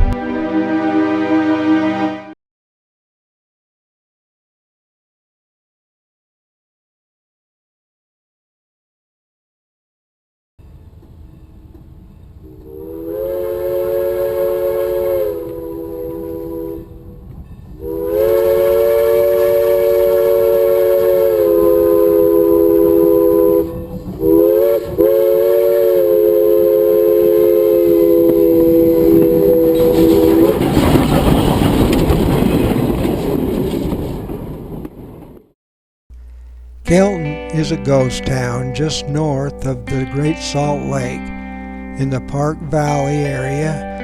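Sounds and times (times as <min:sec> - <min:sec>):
train horn blasts: 0:00.0 - 0:02.4, 0:12.4 - 0:17.2, 0:17.8 - 0:30.8
train passing rumble: 0:10.6 - 0:35.5.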